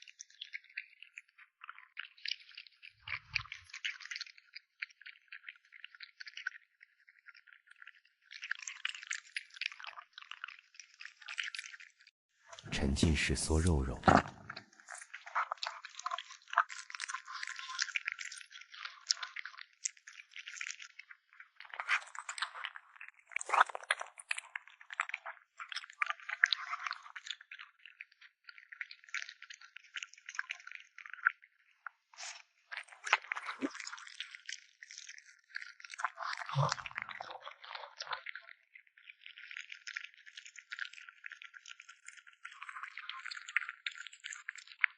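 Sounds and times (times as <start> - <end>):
kitten chewing and slurping: 0.2 - 11.9, 14.1 - 31.4, 32.0 - 38.4.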